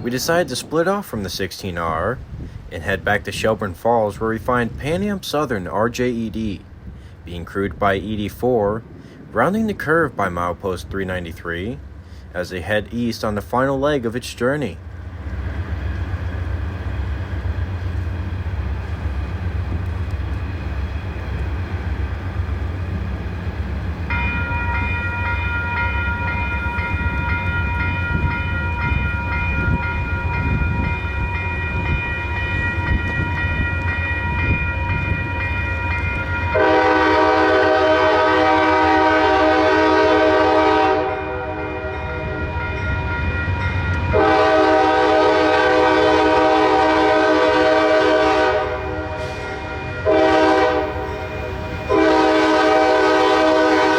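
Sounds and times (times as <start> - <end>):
locomotive engine rumble: 0.0 - 53.9
locomotive air horn blasts: 36.5 - 42.8, 44.1 - 53.9.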